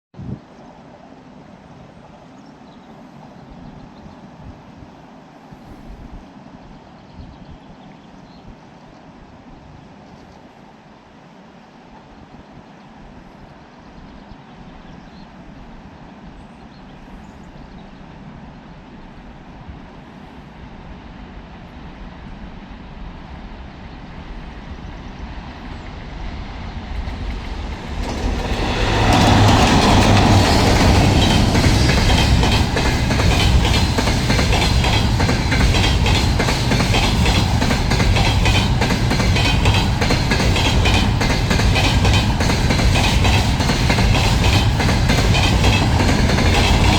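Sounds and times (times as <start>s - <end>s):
electric locomotive passing: 20.5s - 46.9s
train wheels clattering on bridge: 26.4s - 46.9s.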